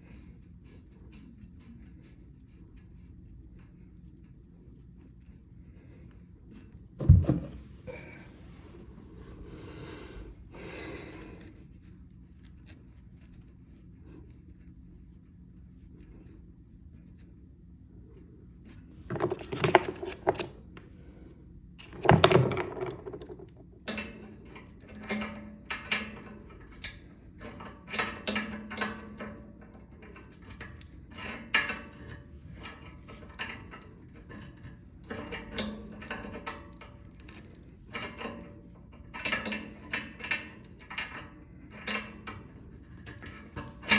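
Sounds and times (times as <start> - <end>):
metal clicks and knocks: 19.1 - 20.6, 21.8 - 26.9.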